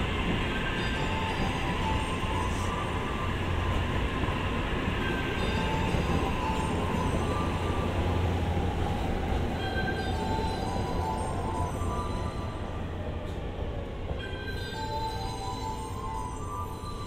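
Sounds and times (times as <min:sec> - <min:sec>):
electric train rumbling past: 0:00.0 - 0:17.0.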